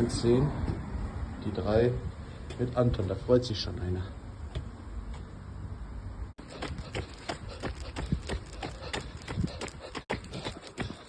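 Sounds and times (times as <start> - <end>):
running footsteps: 6.4 - 11.0.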